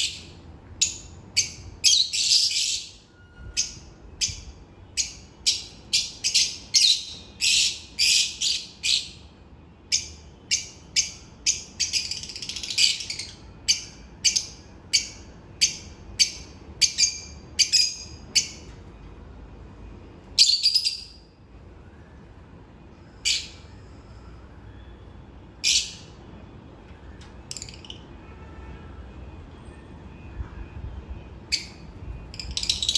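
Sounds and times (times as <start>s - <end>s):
lovebirds chirping: 0.0s - 9.2s, 32.4s - 32.9s.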